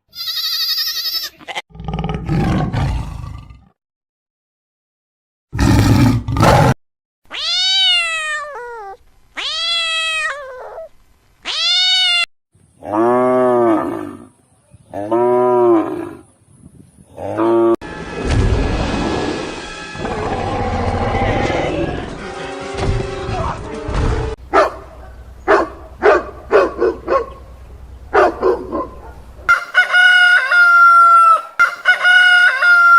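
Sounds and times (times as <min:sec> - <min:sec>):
cat meowing: 0:00.2 - 0:01.6, 0:07.3 - 0:12.3
rooster crowing: 0:29.5 - 0:32.9.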